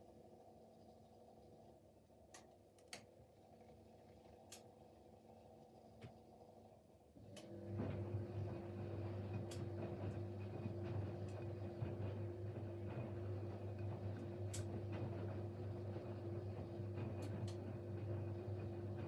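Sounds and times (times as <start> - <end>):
washing machine drum motor humming: 7.2 - 19.0.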